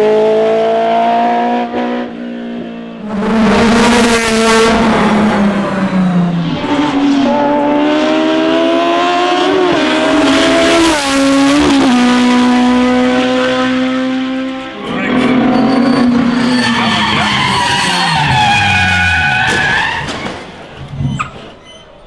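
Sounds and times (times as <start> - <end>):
racing car engine at full throttle: 0.0 - 21.0.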